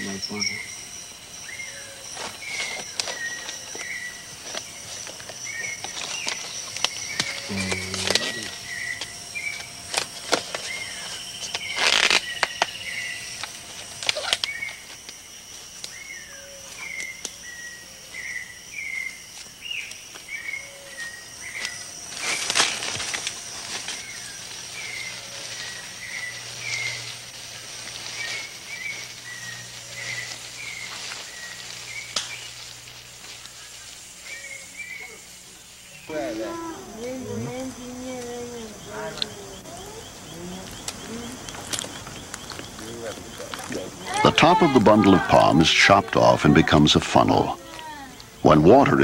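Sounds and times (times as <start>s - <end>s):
high insect drone: 0.0s - 49.0s.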